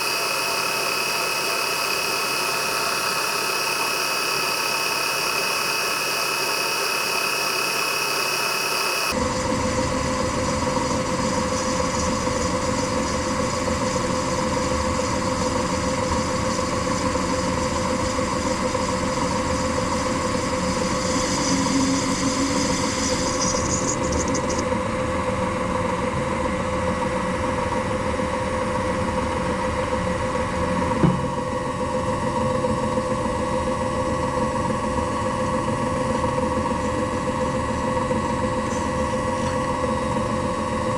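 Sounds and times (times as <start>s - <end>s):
high hiss: 0.0s - 9.1s
machine tool motor humming: 0.0s - 9.2s.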